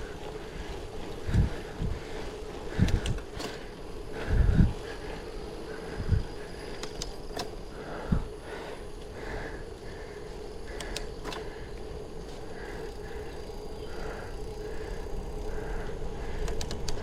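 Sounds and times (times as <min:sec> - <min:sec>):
bicycle riding rumble: 0:00.0 - 0:17.0
steady hum: 0:00.0 - 0:17.0
sharp clicks: 0:02.8 - 0:03.6, 0:06.7 - 0:07.6, 0:10.7 - 0:11.5, 0:16.4 - 0:17.0.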